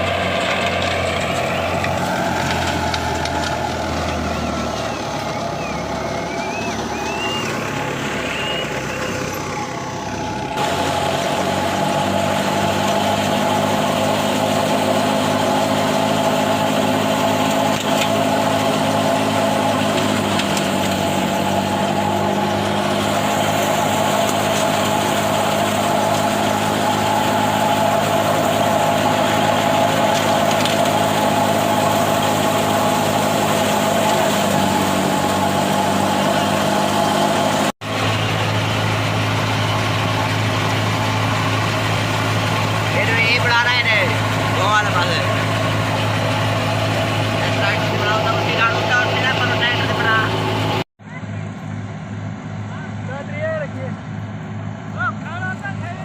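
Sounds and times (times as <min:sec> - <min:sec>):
tractor engine droning: 0:00.0 - 0:56.0.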